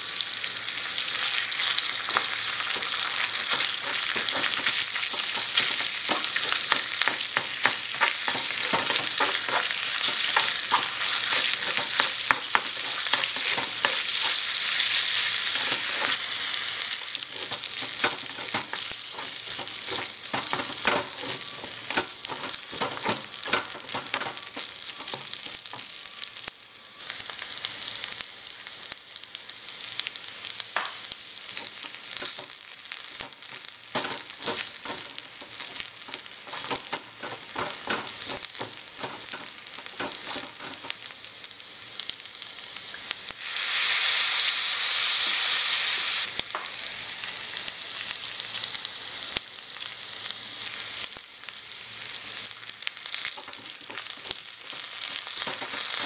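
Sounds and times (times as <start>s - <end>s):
food sizzling in a metal pan: 0.0s - 56.0s
wooden spatula scraping a pan: 2.1s - 16.5s, 17.1s - 25.2s, 33.9s - 41.0s.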